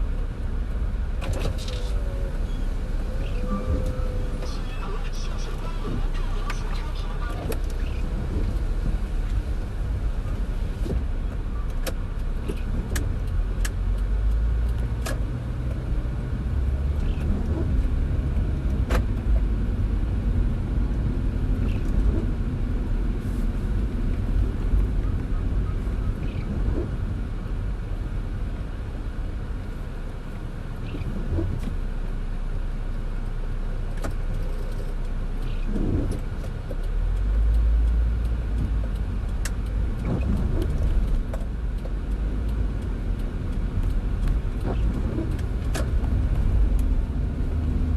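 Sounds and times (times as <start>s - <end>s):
car engine and tyres rumbling: 0.0s - 47.9s
raindrops tapping on car: 33.8s - 47.9s.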